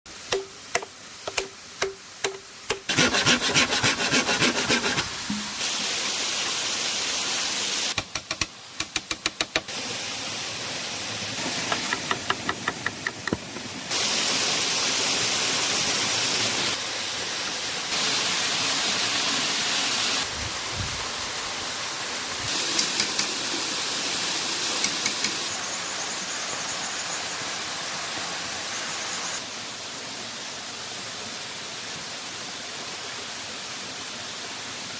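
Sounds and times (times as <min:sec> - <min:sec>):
rushing water: 0:00.1 - 0:07.9.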